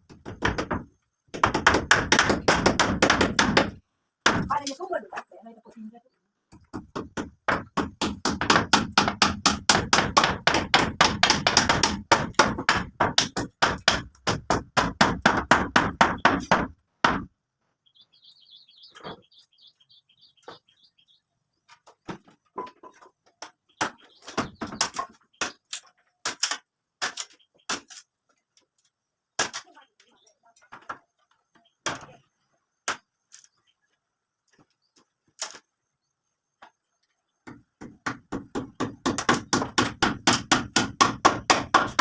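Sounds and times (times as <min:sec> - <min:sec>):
rapid hammering: 0:00.1 - 0:04.6, 0:06.7 - 0:17.3, 0:37.4 - 0:42.0
high chirping: 0:17.8 - 0:21.6, 0:23.6 - 0:25.7.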